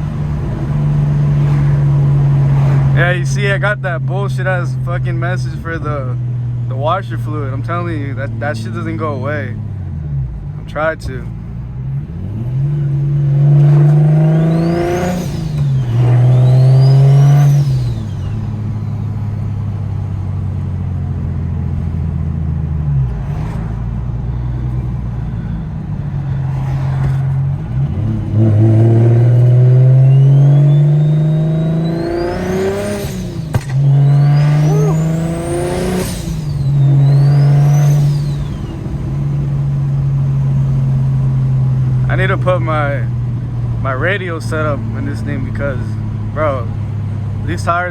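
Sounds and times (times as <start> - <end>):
car engine accelerating: 0.0 - 47.9
turbo whistle: 29.9 - 38.8.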